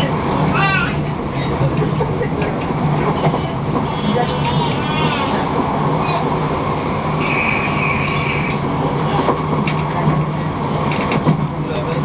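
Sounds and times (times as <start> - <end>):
train rumbling inside carriage: 0.0 - 12.0
high squeal: 6.1 - 8.7.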